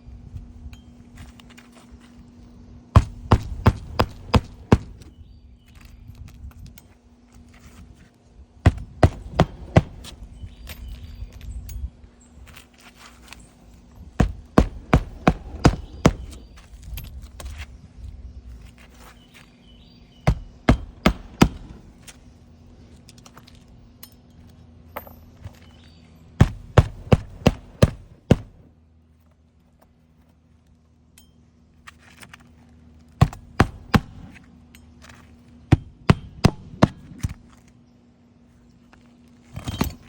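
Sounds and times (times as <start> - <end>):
hammer driving nails: 3.0 - 5.1, 8.7 - 10.2, 14.2 - 16.5, 20.3 - 21.9, 26.4 - 28.6.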